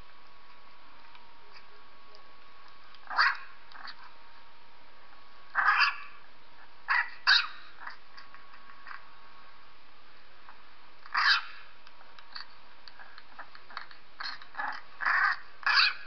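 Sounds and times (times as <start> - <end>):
puppy crying: 3.1 - 4.0, 5.6 - 6.1, 13.7 - 16.0.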